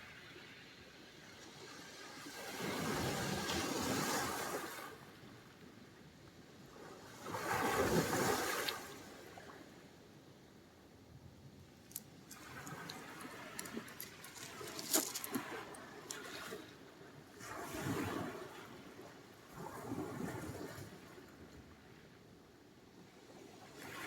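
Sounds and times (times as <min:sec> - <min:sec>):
waves breaking on shore: 0:01.3 - 0:05.5, 0:06.7 - 0:09.8, 0:12.0 - 0:21.6.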